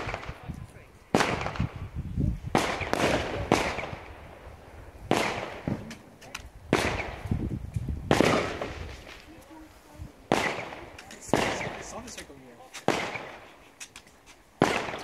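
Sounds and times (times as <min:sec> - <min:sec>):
fireworks bangs with echo: 0:00.0 - 0:00.5, 0:01.1 - 0:06.0, 0:06.7 - 0:07.4, 0:08.0 - 0:09.4, 0:10.3 - 0:13.6, 0:14.6 - 0:15.0
faint firework pops: 0:05.1 - 0:09.5, 0:10.3 - 0:15.0.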